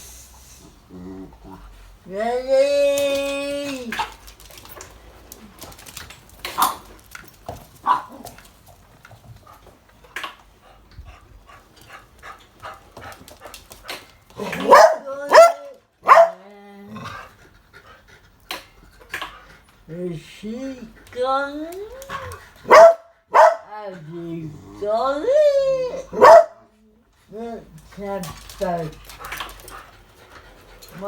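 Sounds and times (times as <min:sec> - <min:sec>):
dog barking: 0:07.8 - 0:08.2, 0:14.6 - 0:16.4, 0:22.6 - 0:23.7, 0:26.1 - 0:26.6.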